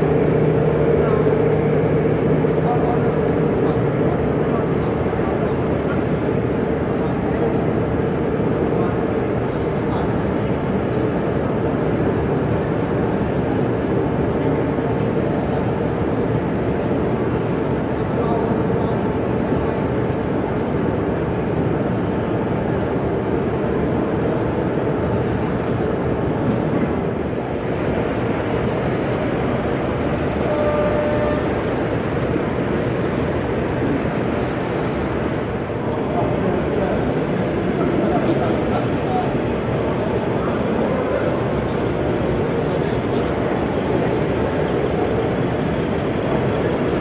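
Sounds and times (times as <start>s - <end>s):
crowd hubbub: 0.0s - 21.2s, 25.4s - 47.0s
model train rumbling: 0.0s - 47.0s
faint short tone: 30.4s - 31.5s.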